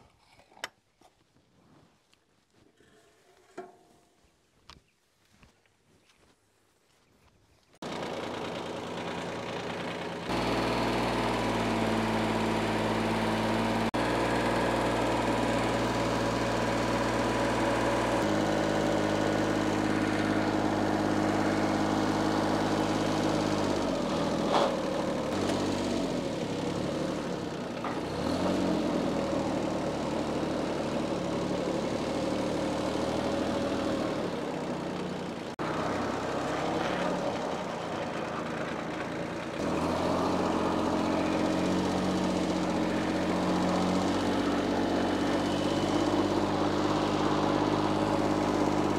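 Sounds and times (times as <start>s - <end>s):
diesel engine running: 7.8s - 48.9s.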